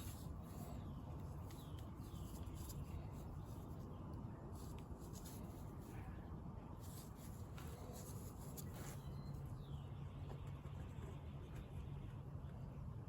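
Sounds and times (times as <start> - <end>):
scratching and handling noises: 0.0 - 9.6.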